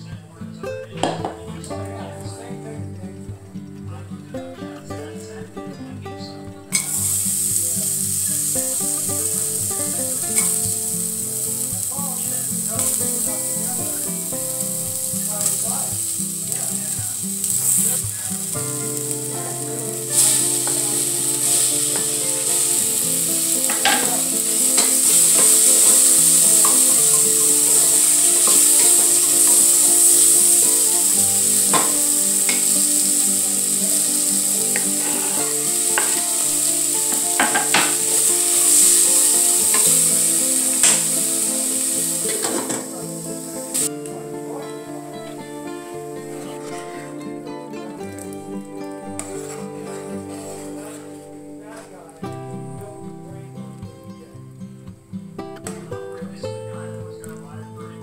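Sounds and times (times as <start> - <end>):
hot oil sizzling: 6.7 - 44.2.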